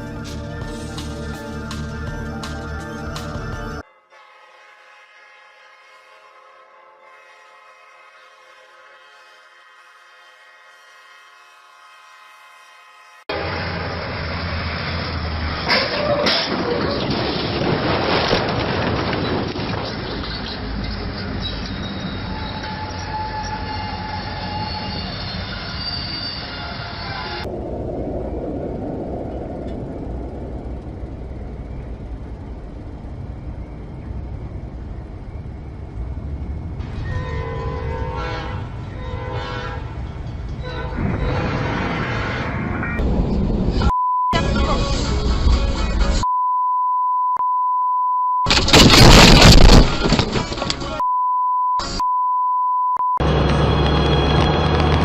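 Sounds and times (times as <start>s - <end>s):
noisy clip audio with music: 0.0s - 3.8s, 43.8s - 46.3s
rumbling vehicle noise: 13.3s - 46.2s, 48.5s - 51.1s, 53.2s - 55.0s
high squealing tones: 20.3s - 27.5s
censor bleep tone: 43.8s - 44.4s, 46.2s - 48.5s, 51.0s - 53.2s.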